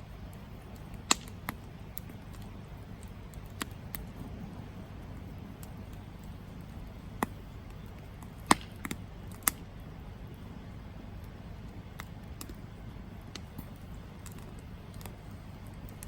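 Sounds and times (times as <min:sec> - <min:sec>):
campfire crackling and popping: 0:00.0 - 0:16.0
sharp wood snaps: 0:00.3 - 0:04.1, 0:07.2 - 0:09.6.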